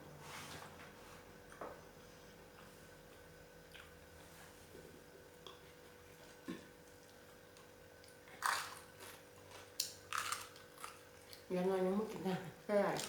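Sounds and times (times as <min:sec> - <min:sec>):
faint steady hum: 0:00.0 - 0:13.0
person eating: 0:02.5 - 0:04.0, 0:08.0 - 0:11.5.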